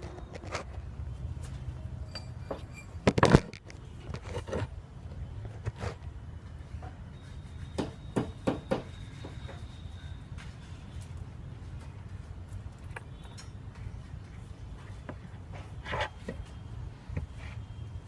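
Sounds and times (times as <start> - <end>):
metallic clinks and knocks: 2.0 - 3.6.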